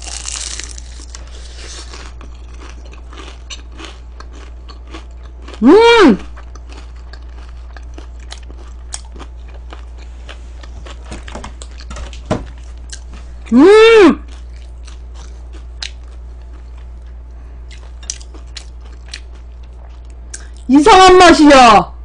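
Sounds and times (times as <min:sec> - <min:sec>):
crisp crunching of fried chicken: 0:00.0 - 0:11.9, 0:14.2 - 0:20.7
close-up chewing: 0:00.0 - 0:13.5, 0:14.2 - 0:20.7.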